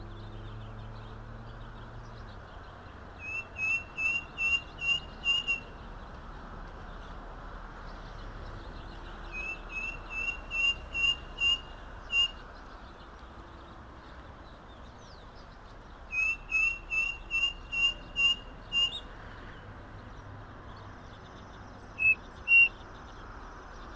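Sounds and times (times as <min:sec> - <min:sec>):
cuckoo whistled notes: 0:03.2 - 0:05.7, 0:09.3 - 0:12.4, 0:16.1 - 0:19.0.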